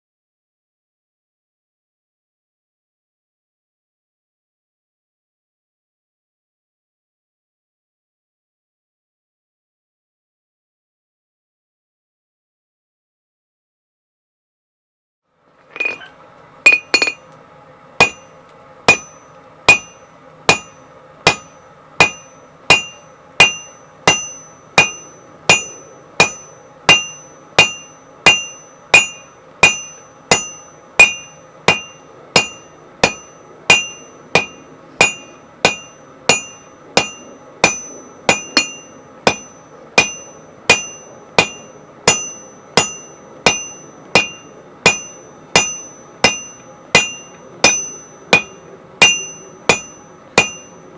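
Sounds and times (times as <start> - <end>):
steady hum: 15.3 - 50.9
hammer striking steel on anvil: 15.7 - 17.3, 18.0 - 50.9.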